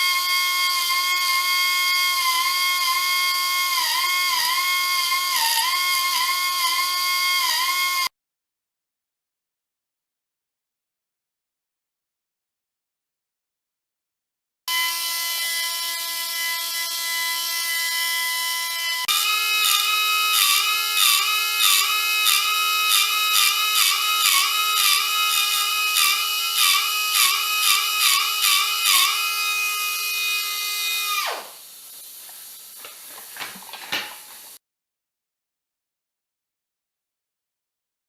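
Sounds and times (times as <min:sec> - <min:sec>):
power tool motor whining: 0:14.7 - 0:31.6.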